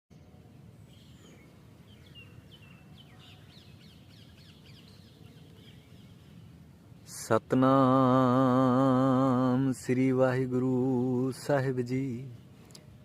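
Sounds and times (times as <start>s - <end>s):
faint bird chirping: 0.1s - 7.4s
steady low background noise: 0.1s - 13.0s.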